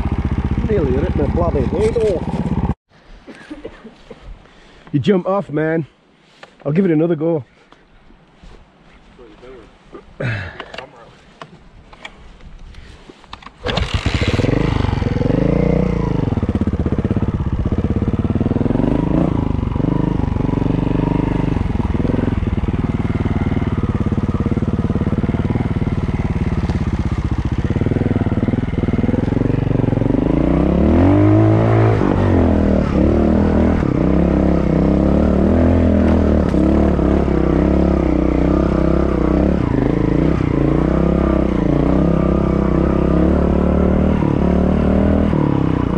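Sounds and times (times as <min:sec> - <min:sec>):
motorcycle engine revving: 0:00.0 - 0:02.8, 0:13.6 - 0:45.9.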